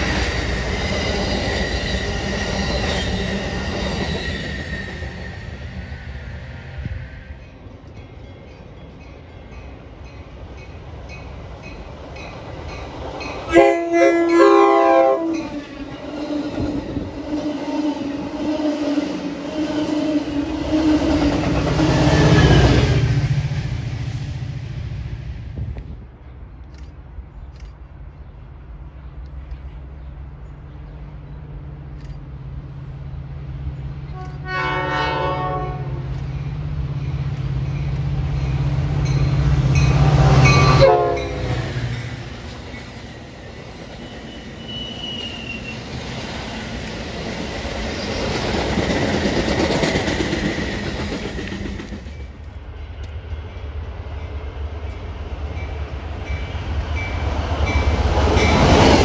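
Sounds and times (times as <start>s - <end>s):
train wheels on rails: 0.0s - 59.0s
train horn blast: 13.5s - 15.6s, 34.1s - 36.1s, 39.9s - 41.6s
wheel squeal: 44.0s - 46.0s.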